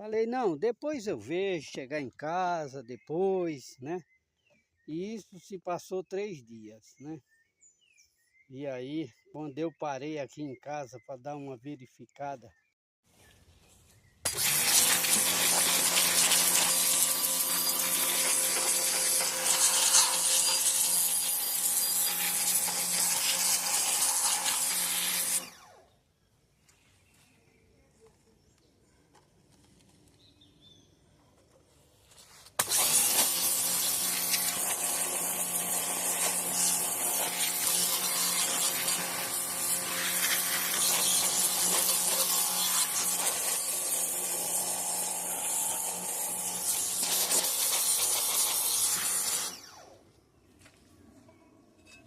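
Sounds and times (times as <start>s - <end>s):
power tool grinding: 14.2s - 25.9s, 32.6s - 50.0s.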